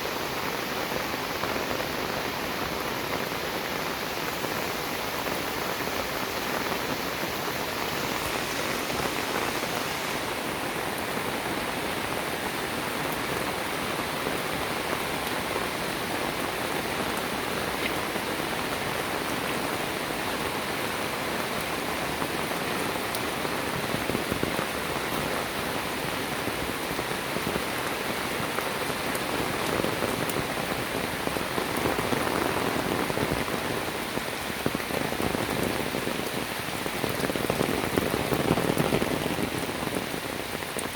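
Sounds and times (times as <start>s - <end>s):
rain pattering on surfaces: 0.0s - 40.9s.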